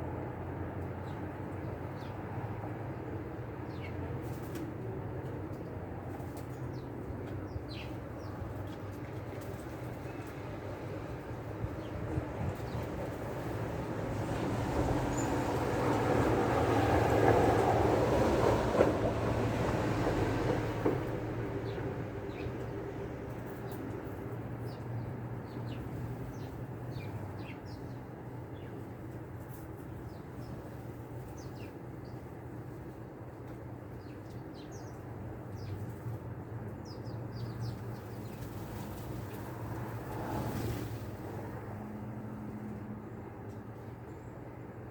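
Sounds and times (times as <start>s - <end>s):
songbirds chirping: 0.8s - 40.8s, 43.0s - 44.9s
passing vehicle rumble: 37.4s - 43.8s.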